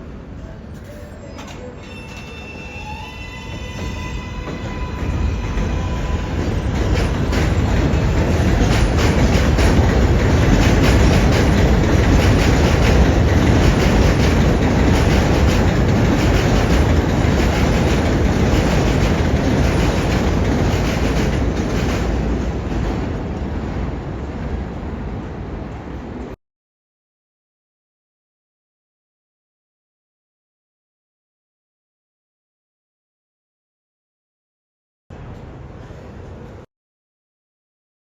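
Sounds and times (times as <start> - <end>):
subway train wheels rattling: 0.0 - 26.4, 35.1 - 36.7.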